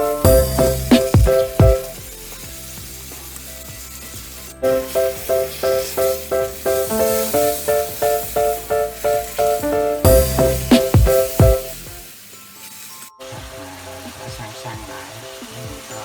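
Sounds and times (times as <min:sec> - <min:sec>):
plucked melody music: 0:00.0 - 0:02.9, 0:04.6 - 0:12.1
meat sizzling in oil: 0:00.0 - 0:16.0.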